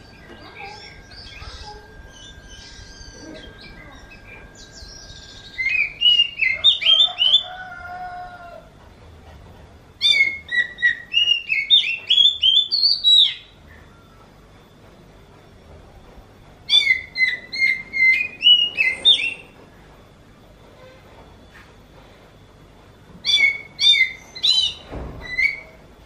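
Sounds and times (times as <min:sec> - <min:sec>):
bird singing whistled notes: 0:00.0 - 0:07.5, 0:10.0 - 0:14.2, 0:16.7 - 0:19.6, 0:23.2 - 0:25.8.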